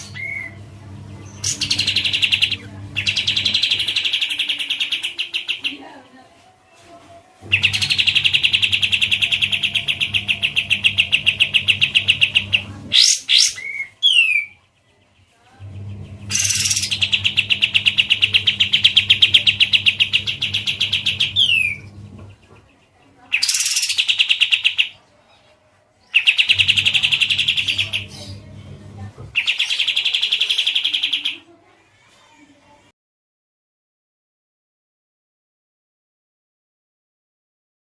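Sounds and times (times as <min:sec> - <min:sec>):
low hum: 0:00.0 - 0:05.3, 0:07.4 - 0:13.0, 0:15.2 - 0:22.7, 0:26.5 - 0:29.3
bird buzzing trills: 0:07.5 - 0:13.1, 0:15.7 - 0:22.0.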